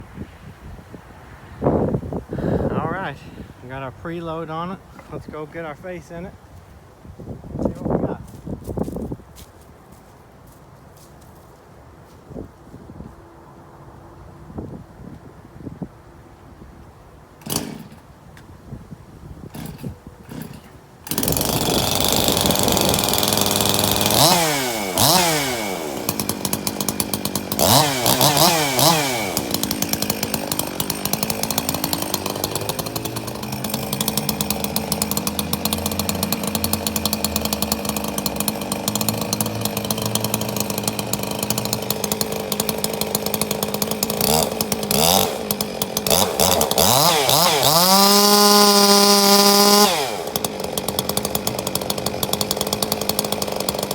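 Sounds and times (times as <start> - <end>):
chainsaw revving and cutting: 17.4 - 18.0, 19.5 - 53.9.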